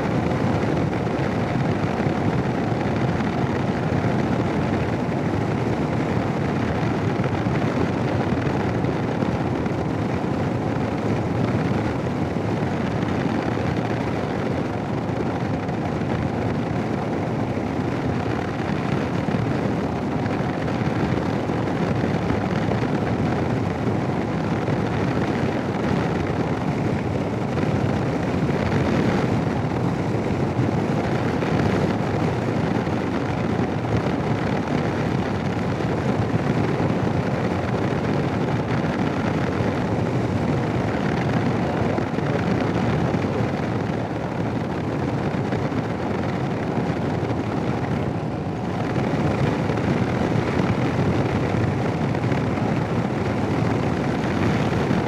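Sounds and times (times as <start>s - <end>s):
wind rush: 0.0s - 55.0s.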